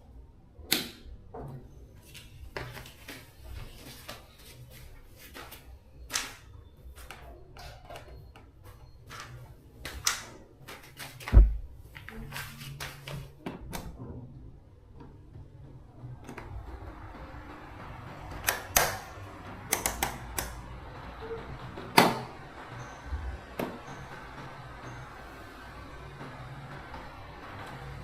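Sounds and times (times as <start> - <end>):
heavy thump: 11.3 - 11.8.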